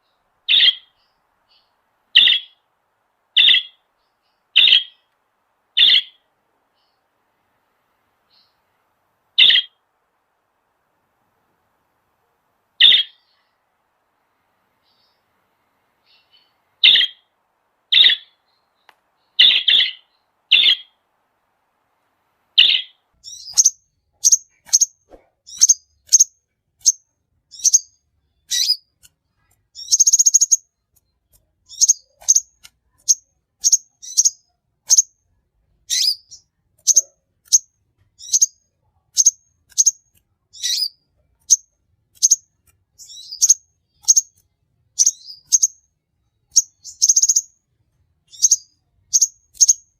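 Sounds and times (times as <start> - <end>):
buzzy bird trill: 0.0 - 2.7, 3.4 - 5.1, 5.7 - 7.0, 9.4 - 9.8, 12.8 - 13.6, 16.0 - 17.3, 17.9 - 21.0, 22.6 - 27.9, 29.8 - 30.6, 35.9 - 42.4, 43.0 - 44.4, 45.0 - 45.8, 46.5 - 47.5, 48.3 - 49.9
birds chirping: 0.0 - 35.1, 35.9 - 47.6, 48.2 - 49.9.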